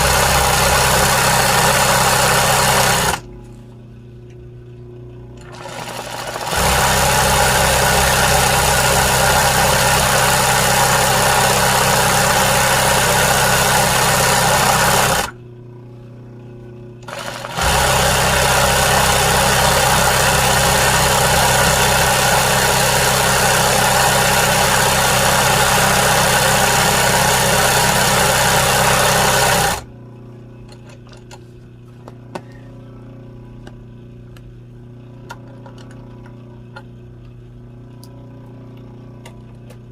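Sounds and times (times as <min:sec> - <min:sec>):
sewing machine stitching: 0:00.0 - 0:03.2, 0:05.4 - 0:15.4, 0:17.0 - 0:29.9.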